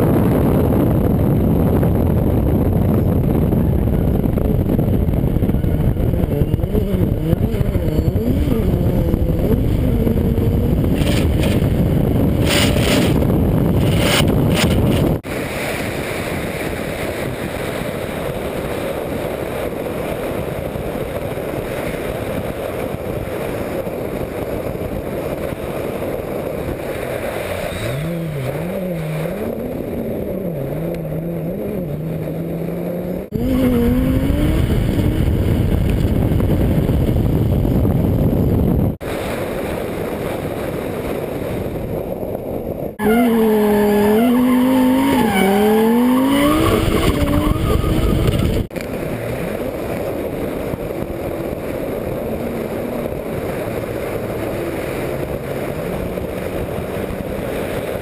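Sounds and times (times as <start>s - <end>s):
race car engine revving: 4.0s - 15.3s, 26.9s - 36.0s, 43.0s - 57.9s.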